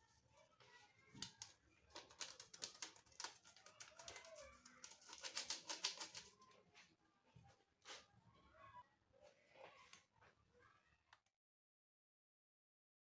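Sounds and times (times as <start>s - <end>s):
faint clicking and tapping: 0.5s - 7.6s.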